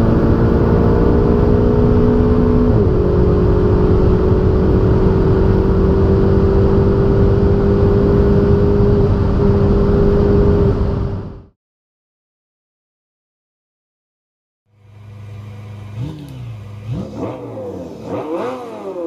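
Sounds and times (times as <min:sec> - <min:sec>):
road and wind noise: 0:00.0 - 0:11.6, 0:14.7 - 0:19.0
car engine running: 0:14.7 - 0:19.0.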